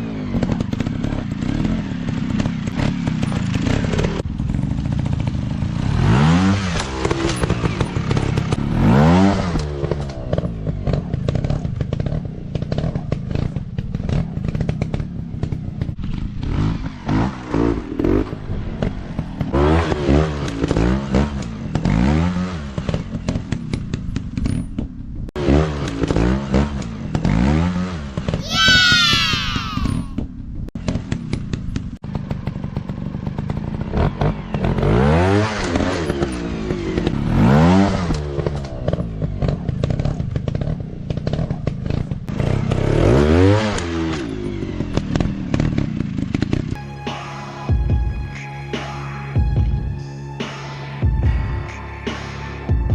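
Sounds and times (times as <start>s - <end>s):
dirt bike engines revving: 0.0s - 23.5s, 25.4s - 30.2s.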